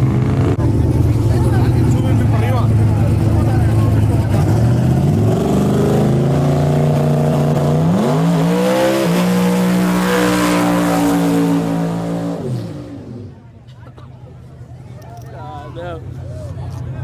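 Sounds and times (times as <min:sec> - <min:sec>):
truck engine accelerating: 0:00.0 - 0:13.5.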